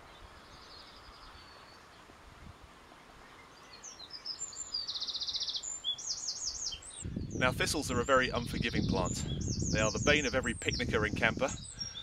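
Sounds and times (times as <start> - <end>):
background hiss: 0.0 - 10.2
songbirds singing: 0.0 - 12.0
high bird trill: 3.7 - 11.0.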